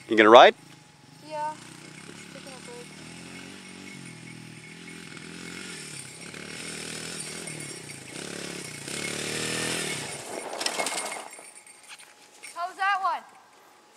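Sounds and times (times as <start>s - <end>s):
dirt bike engine revving: 0.0s - 11.7s.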